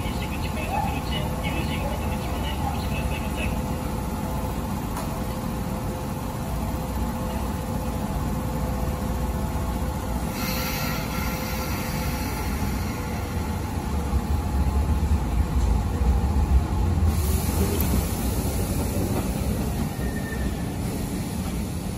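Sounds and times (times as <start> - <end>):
train motors and wheels rumbling: 0.0 - 21.9
air hiss: 10.2 - 14.1, 17.1 - 19.6.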